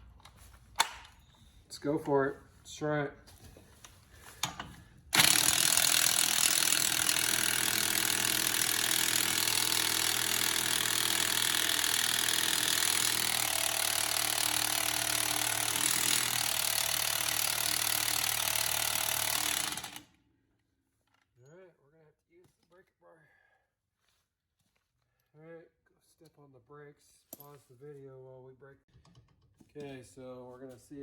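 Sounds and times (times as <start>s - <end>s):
impact wrench hammering: 5.2s - 20.1s.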